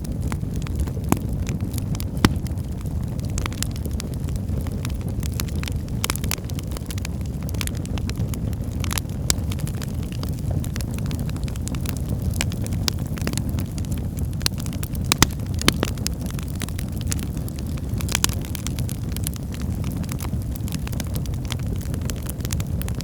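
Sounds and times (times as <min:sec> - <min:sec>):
wood fire burning in fireplace: 0:00.0 - 0:23.0.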